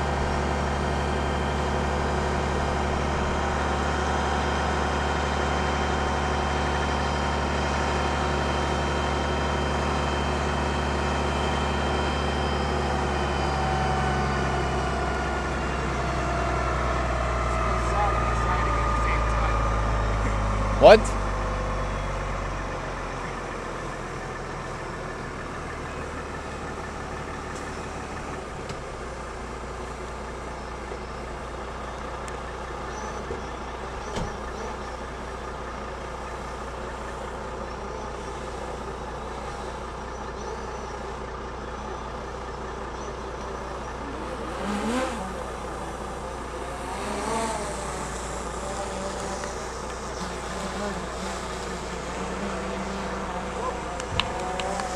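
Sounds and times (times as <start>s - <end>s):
vehicle engine humming: 0.0s - 54.9s
constant hiss: 44.4s - 54.9s.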